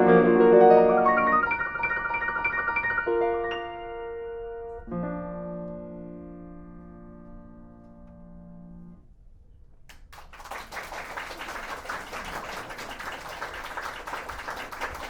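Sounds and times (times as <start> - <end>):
piano chord: 0.0 - 9.0
audience applause: 9.9 - 15.0.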